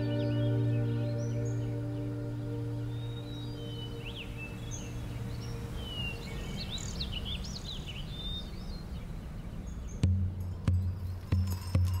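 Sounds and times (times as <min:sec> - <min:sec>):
ambient music drone: 0:00.0 - 0:07.0
songbirds chirping and whistling: 0:00.0 - 0:12.0.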